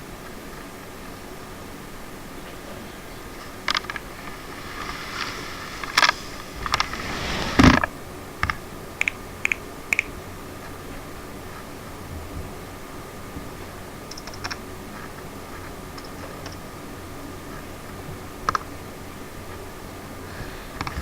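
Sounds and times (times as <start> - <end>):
sharp clicks and taps: 9.0 - 10.1.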